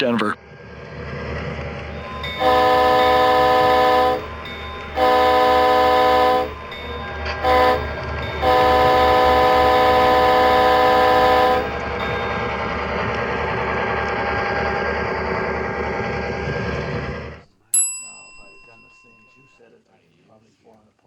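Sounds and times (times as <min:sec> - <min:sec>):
train rumbling: 0:00.0 - 0:17.4
train horn blasts: 0:02.4 - 0:12.4.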